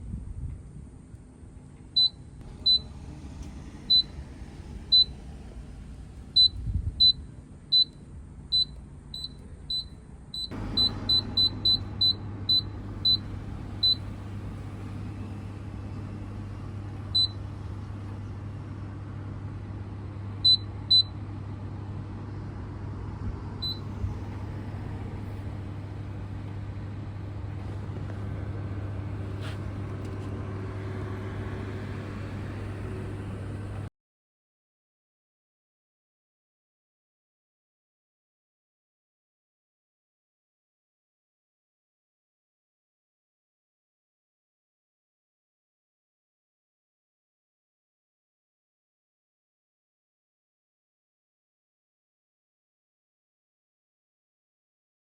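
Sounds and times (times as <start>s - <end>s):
microwave oven humming: 0.1s - 33.9s
keypad beeps: 2.0s - 2.9s, 4.9s - 5.1s, 6.4s - 14.1s, 17.2s - 17.4s, 23.6s - 23.8s.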